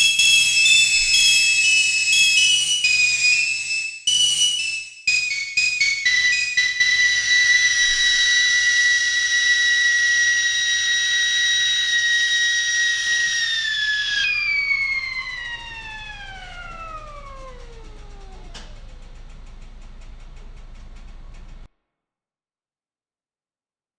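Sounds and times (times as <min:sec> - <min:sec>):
kettle whistle: 0:00.0 - 0:19.3.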